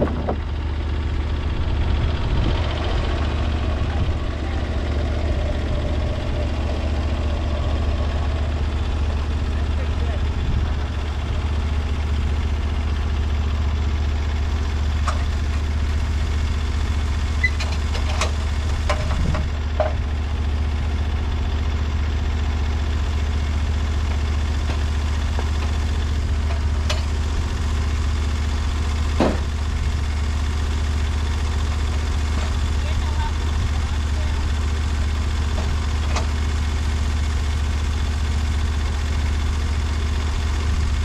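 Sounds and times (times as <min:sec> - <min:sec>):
engine idling: 0:00.0 - 0:41.0.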